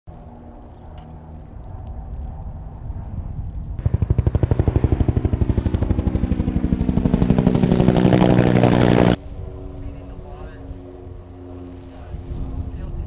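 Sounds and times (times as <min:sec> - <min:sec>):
helicopter rotor beating: 0:03.8 - 0:13.0.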